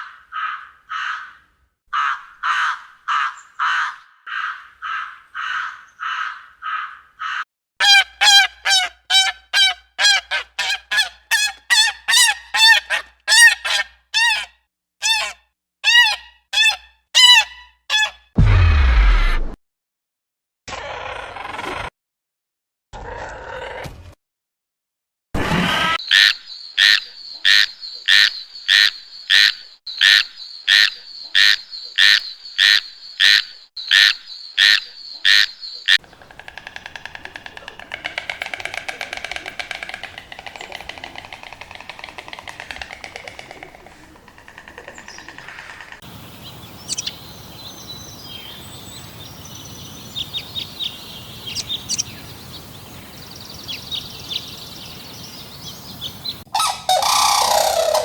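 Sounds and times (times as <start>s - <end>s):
high bird chirps: 26.0s - 58.0s
steady hiss: 46.1s - 56.4s
loud high animal call: 56.1s - 58.0s.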